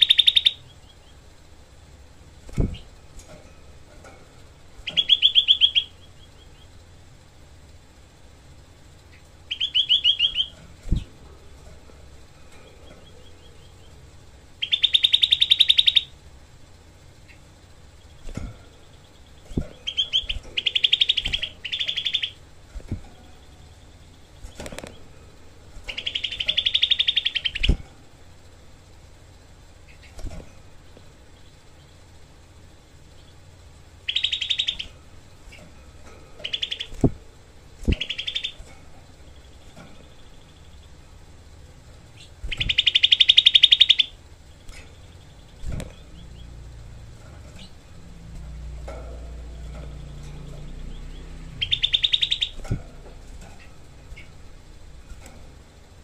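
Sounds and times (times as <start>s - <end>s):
bird singing rapid trills: 0.0s - 56.0s.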